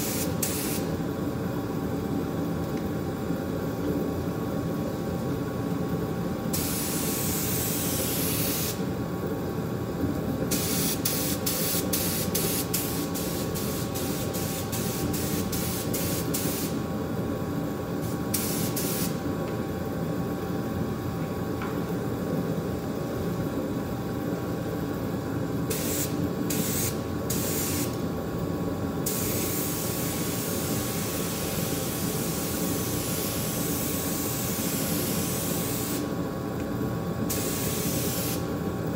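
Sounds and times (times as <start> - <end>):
compressed air spraying: 0.0 - 0.9, 6.5 - 8.8, 10.5 - 16.8, 18.0 - 19.2, 25.7 - 28.0, 29.0 - 36.2, 37.3 - 38.5.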